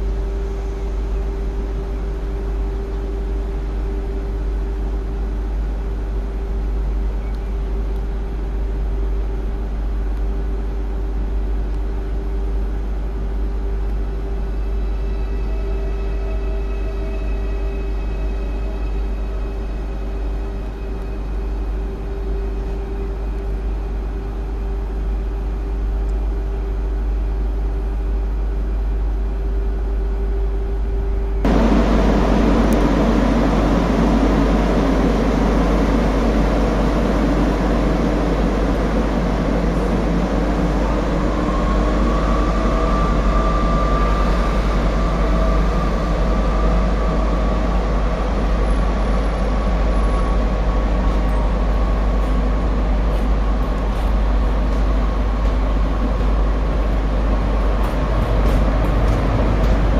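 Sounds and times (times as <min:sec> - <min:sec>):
rising train whine: 0:00.0 - 0:59.9
train electrical hum: 0:00.0 - 0:59.9
train rumbling: 0:00.0 - 0:59.9.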